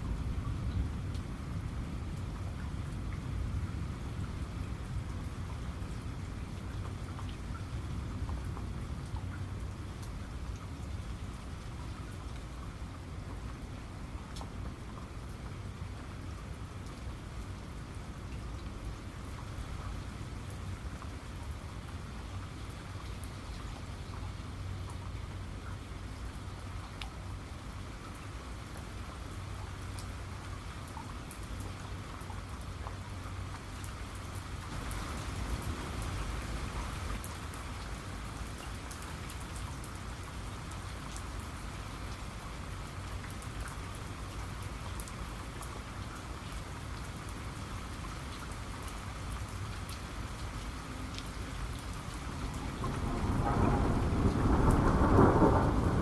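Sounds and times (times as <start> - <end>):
steady rain: 0.0 - 56.0
thunder rolling: 52.7 - 56.0.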